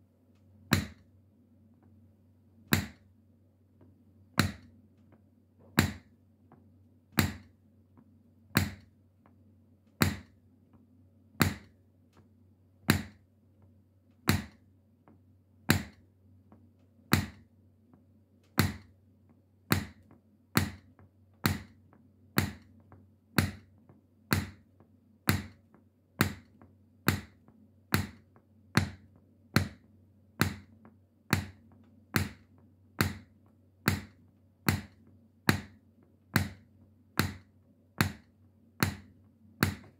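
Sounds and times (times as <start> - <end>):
metal shoe taps clicking: 0.7 - 1.1, 31.3 - 39.9.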